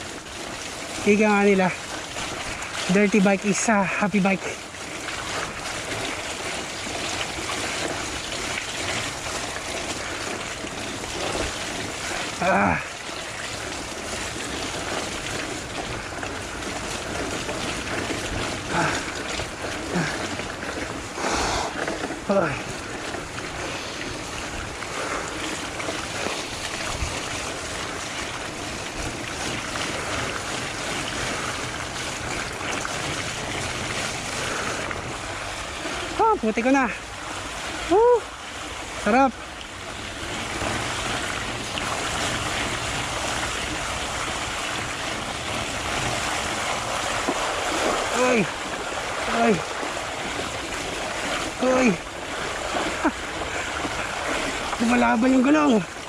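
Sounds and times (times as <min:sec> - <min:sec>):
bike tyres rolling on mud: 0:00.0 - 0:56.0.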